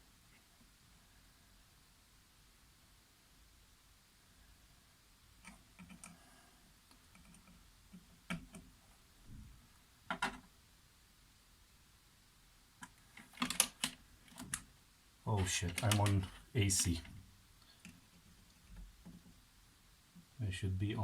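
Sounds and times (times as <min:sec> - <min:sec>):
faint clicks and taps of handling: 0:06.9 - 0:08.7, 0:15.4 - 0:19.4.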